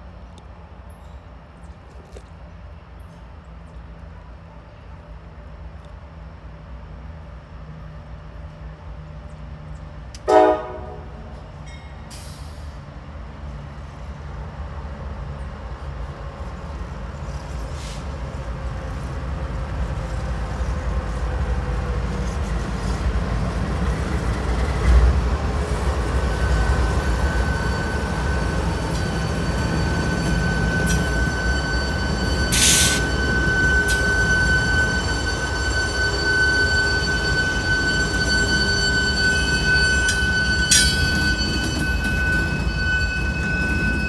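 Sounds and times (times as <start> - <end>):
locomotive engine rumble: 0.0 - 44.0
rail noise: 0.0 - 44.0
train horn toot: 10.2 - 11.3.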